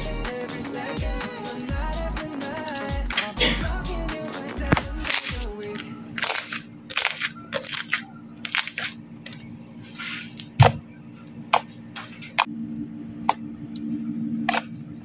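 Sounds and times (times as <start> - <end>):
slime crackling and squishing: 6.1 - 9.5.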